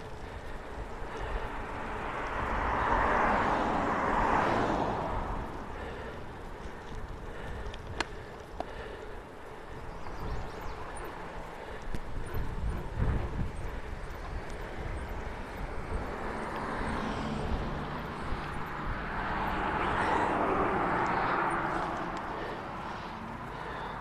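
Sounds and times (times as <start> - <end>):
bicycle riding on gravel: 0.0 - 24.0
broad rushing noise: 1.1 - 24.0
wind on microphone: 11.9 - 20.6.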